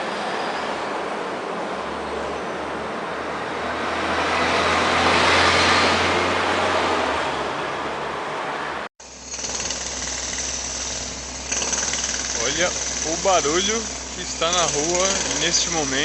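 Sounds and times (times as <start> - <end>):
traffic rushing: 0.0 - 8.9.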